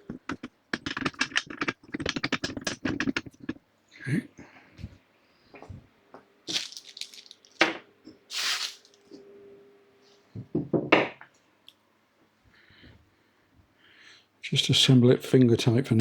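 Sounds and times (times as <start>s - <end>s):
metal parts knocking and clinking: 0.1s - 3.6s.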